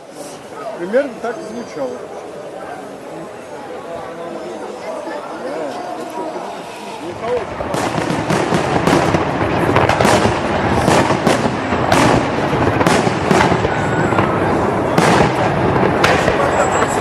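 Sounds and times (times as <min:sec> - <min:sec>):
fireworks bangs: 0:06.6 - 0:17.0
rumbling and crackle: 0:07.2 - 0:17.0.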